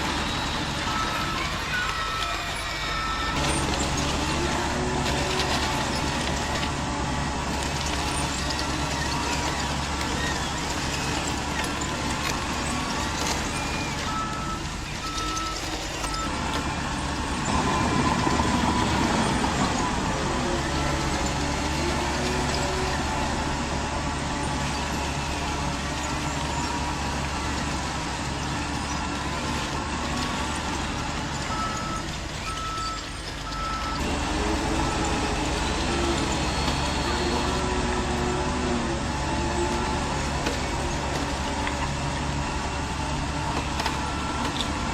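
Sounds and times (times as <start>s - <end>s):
truck reversing beeper: 0.0s - 6.8s, 7.5s - 44.9s
model trucks mechanical hum: 0.0s - 44.9s.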